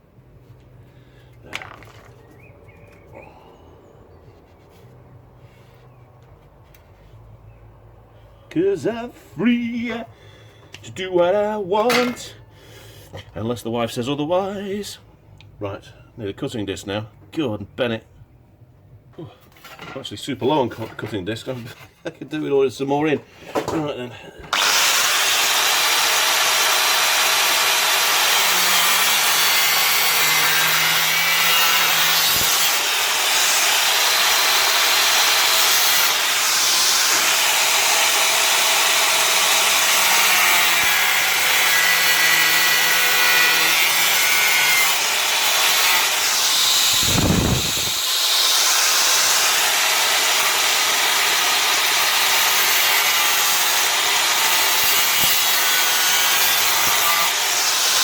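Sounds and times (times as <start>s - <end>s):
angle grinder cutting steel: 24.5s - 58.0s.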